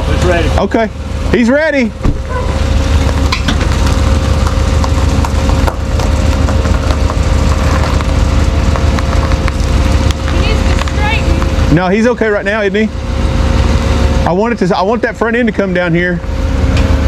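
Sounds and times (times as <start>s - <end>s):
truck engine running: 0.0s - 17.0s
winch whine: 0.0s - 17.0s.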